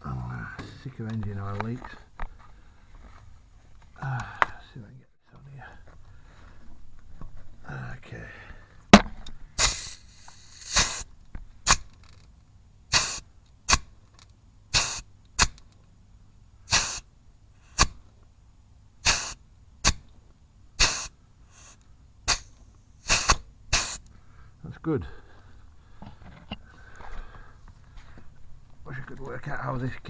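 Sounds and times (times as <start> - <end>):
grease gun pumping: 9.6 - 11.0, 16.7 - 17.0, 20.8 - 21.7, 22.3 - 24.0
short air hiss: 9.6 - 11.1, 12.9 - 13.9, 14.7 - 15.6, 16.7 - 18.0, 19.0 - 20.0, 20.8 - 24.1.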